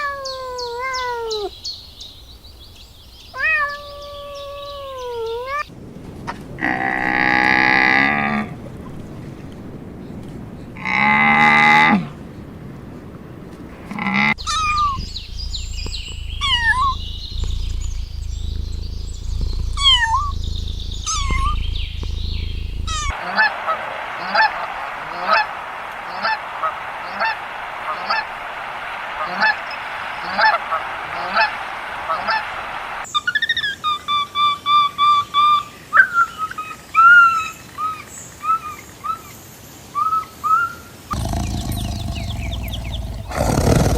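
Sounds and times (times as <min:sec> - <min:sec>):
geese honking: 0:14.2 - 0:33.0
low rumble: 0:14.4 - 0:23.1.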